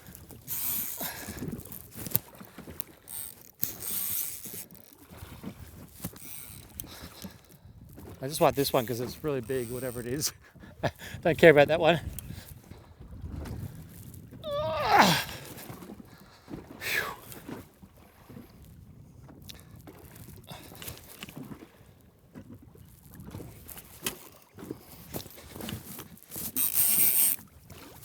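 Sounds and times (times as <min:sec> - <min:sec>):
faint clicks and knocks: 0:00.0 - 0:10.4
man groaning: 0:14.4 - 0:15.5.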